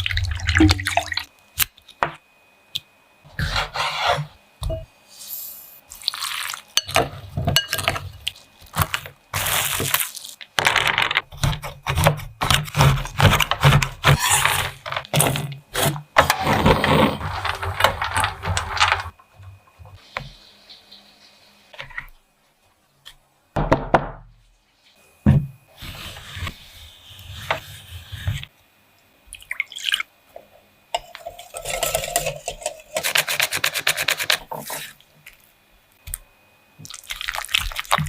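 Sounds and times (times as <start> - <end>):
utensils and dishes clattering: 6.8 - 8.2, 31.0 - 33.2.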